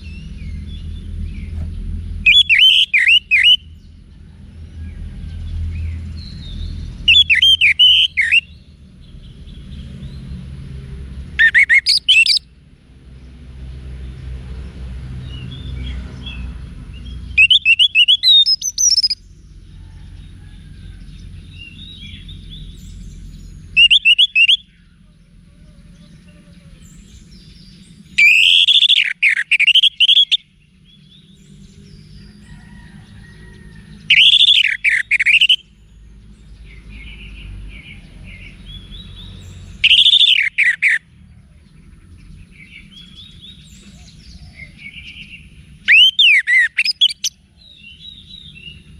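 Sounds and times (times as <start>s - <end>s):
thrush singing whistled notes: 2.2s - 3.9s, 5.8s - 8.7s, 11.3s - 12.5s, 17.0s - 19.4s, 21.5s - 25.0s, 26.7s - 32.2s, 34.0s - 35.8s, 38.3s - 41.1s, 42.5s - 48.9s.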